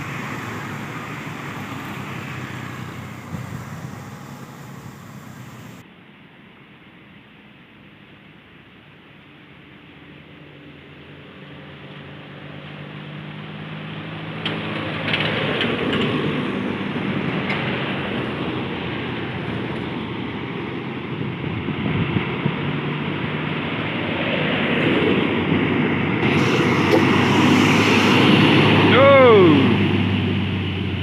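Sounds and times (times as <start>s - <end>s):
truck diesel engine labouring: 0.0s - 5.8s, 13.9s - 31.0s.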